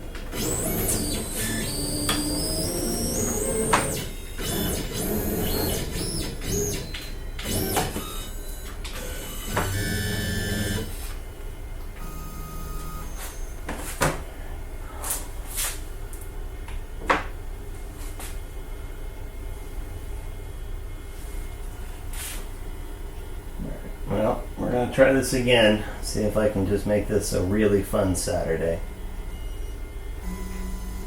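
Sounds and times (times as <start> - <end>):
stepper motors whining: 0.1 - 11.2, 12.0 - 13.7.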